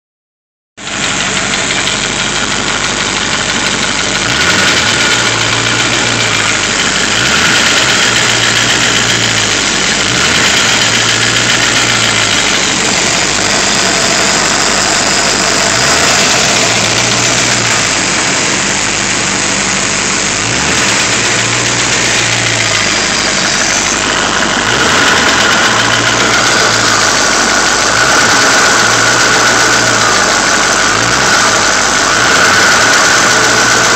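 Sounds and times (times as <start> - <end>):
car engine running: 0.8 - 33.9.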